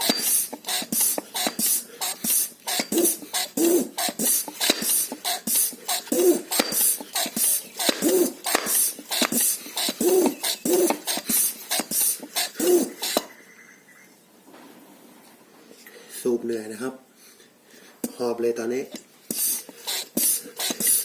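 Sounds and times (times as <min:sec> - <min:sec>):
hand pump hissing strokes: 0:00.0 - 0:13.3, 0:19.2 - 0:21.0.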